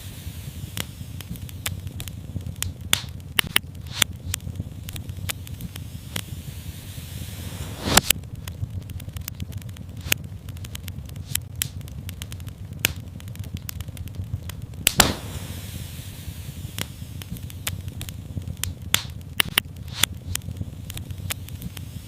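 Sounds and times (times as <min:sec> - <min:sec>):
fire crackling in a fireplace: 0:00.0 - 0:22.0
low steady rumble: 0:00.0 - 0:22.0
sharp pops of fire: 0:00.0 - 0:22.0.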